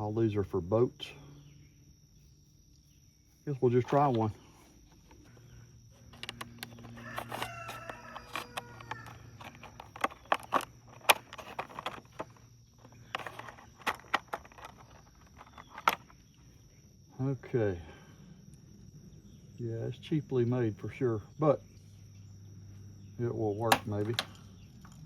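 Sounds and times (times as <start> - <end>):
plastic parts clicking: 3.8 - 16.2, 23.6 - 25.0
rooster crowing: 6.7 - 9.8.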